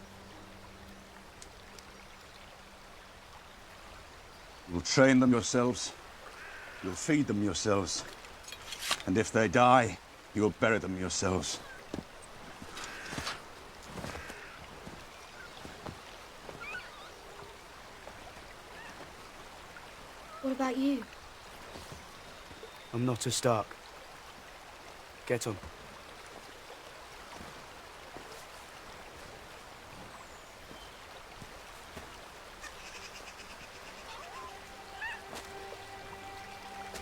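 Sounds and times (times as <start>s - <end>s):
faint outdoor background noise: 0.0s - 37.0s
running water: 0.0s - 37.0s
faint clicks: 1.3s - 1.9s
faint music tones: 33.4s - 37.0s.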